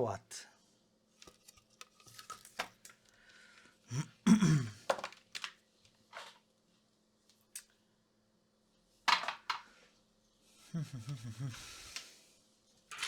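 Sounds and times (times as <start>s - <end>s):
wordless vocal sound: 10.7s - 12.0s.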